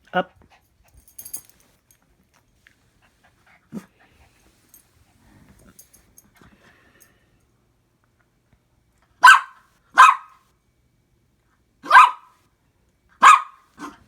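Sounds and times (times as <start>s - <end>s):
dog barking: 9.2s - 10.4s, 11.8s - 12.4s, 13.2s - 14.0s.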